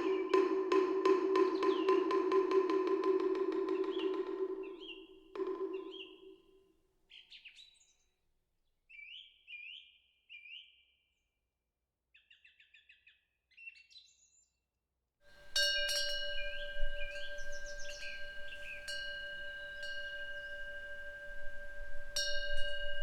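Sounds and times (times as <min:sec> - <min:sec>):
hollow wooden temple block struck: 0:00.0 - 0:06.0
wind bell ringing: 0:15.4 - 0:23.0
small birds chirping: 0:15.5 - 0:23.0.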